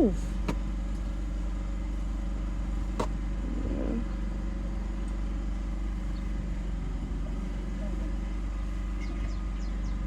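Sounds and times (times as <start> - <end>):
low engine hum: 0.0 - 10.0.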